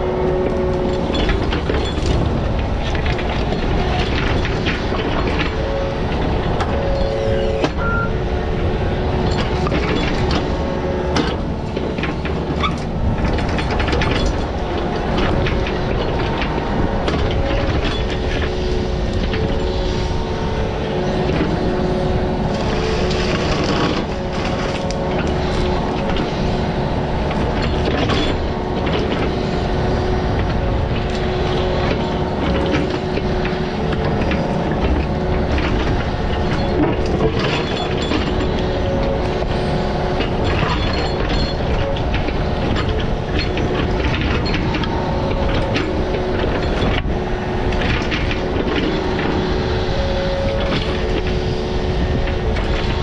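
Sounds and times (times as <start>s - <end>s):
diesel digging machine running: 0.0s - 53.0s
mechanical whine: 0.0s - 53.0s
metal clanks and knocks: 30.4s - 39.5s.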